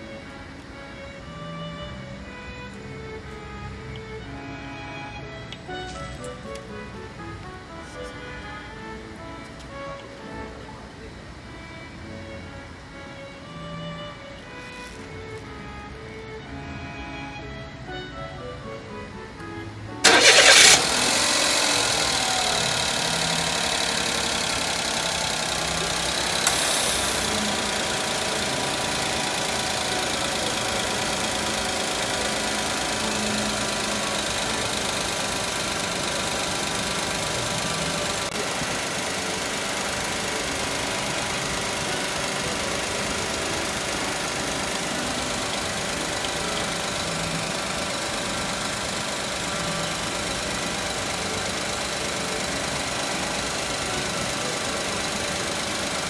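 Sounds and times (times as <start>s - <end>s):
car engine starting and idling: 19.4s - 56.0s.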